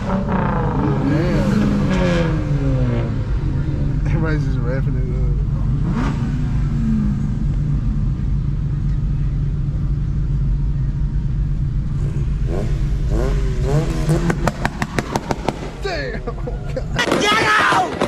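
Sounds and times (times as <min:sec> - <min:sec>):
car engines rumbling and revving: 0:00.0 - 0:18.0
rapid sharp pops: 0:14.2 - 0:15.8, 0:17.0 - 0:18.0.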